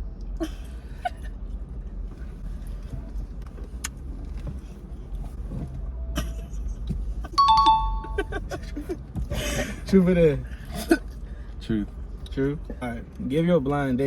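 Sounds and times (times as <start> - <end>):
faint rustles and clicks: 1.4 - 7.2
ringing tone: 7.4 - 8.3.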